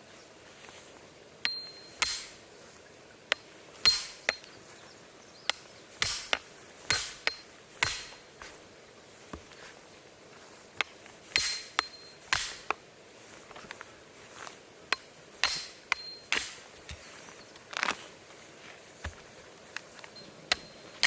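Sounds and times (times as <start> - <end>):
sharp metallic knocks: 1.5 - 2.4, 3.3 - 4.5, 5.5 - 8.2, 11.3 - 12.8, 14.9 - 16.6.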